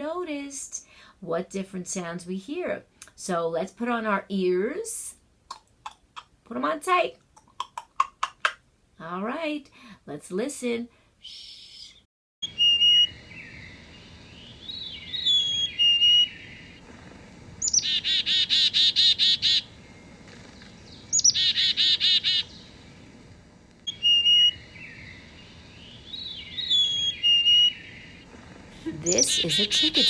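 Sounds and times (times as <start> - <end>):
chickadee buzzy notes: 28.8 - 30.0.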